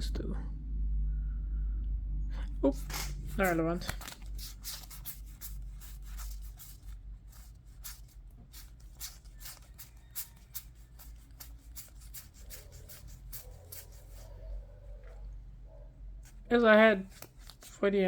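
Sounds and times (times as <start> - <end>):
cards being flicked through: 2.7 - 14.2, 17.0 - 17.8.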